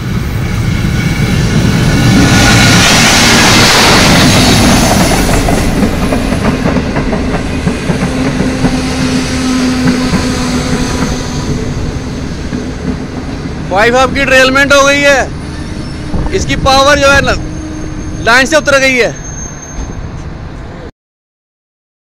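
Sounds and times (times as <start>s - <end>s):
train clattering over track: 0.0s - 20.7s
locomotive passing at speed: 0.0s - 20.9s.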